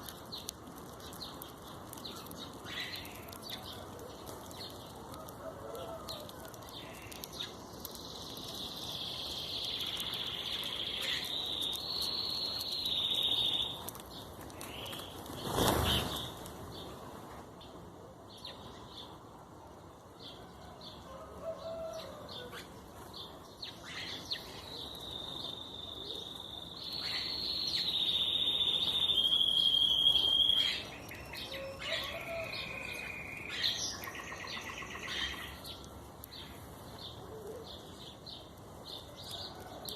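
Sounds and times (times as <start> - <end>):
long high bird trills: 27.0 - 35.6.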